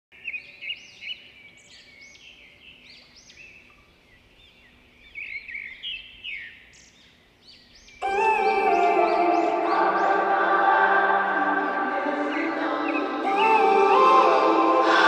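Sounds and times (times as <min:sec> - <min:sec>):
birds chirping and calling: 0:00.2 - 0:15.0.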